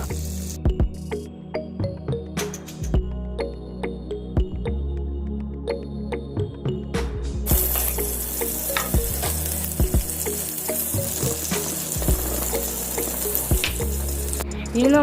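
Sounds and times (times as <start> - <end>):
butter sizzling in a frying pan: 7.5 - 14.4.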